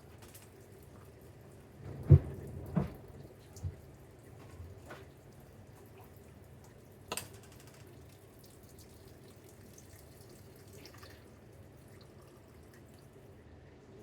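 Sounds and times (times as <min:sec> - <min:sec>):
light kitchen ticks and taps: 0:06.6 - 0:08.2.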